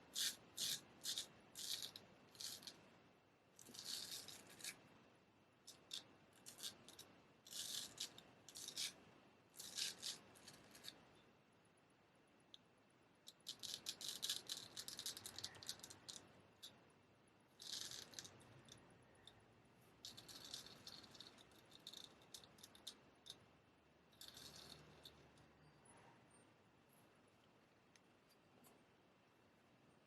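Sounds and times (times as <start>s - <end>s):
razor blade scraping: 0.1s - 2.8s, 5.7s - 9.0s, 9.6s - 11.0s, 17.6s - 19.4s.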